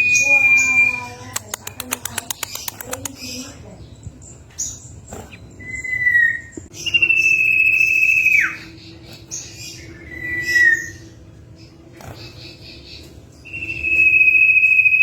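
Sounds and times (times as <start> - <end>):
bird whistling: 0.0 - 1.2, 5.3 - 8.8, 9.6 - 11.1, 13.4 - 15.0.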